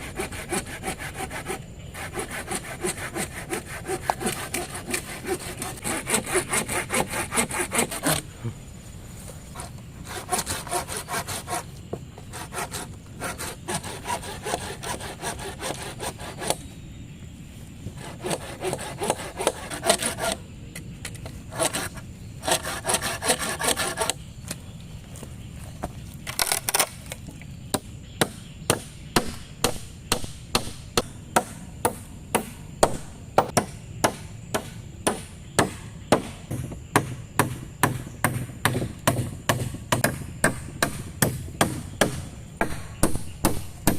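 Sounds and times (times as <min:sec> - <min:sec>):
hand saw cutting wood: 0:00.0 - 0:08.3, 0:09.6 - 0:16.6, 0:18.0 - 0:20.4, 0:21.5 - 0:24.2.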